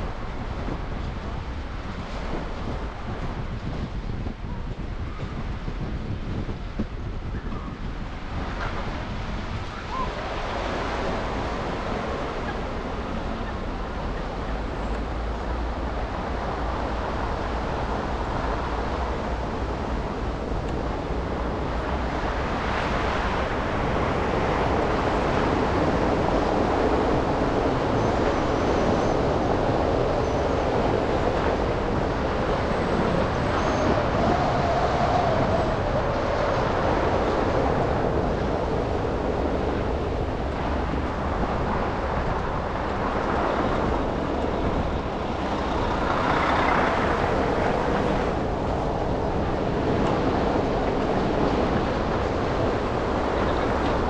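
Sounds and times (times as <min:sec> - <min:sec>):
city traffic: 0:09.0 - 0:34.9, 0:36.1 - 0:54.0
car tyres on wet road: 0:35.7 - 0:54.0.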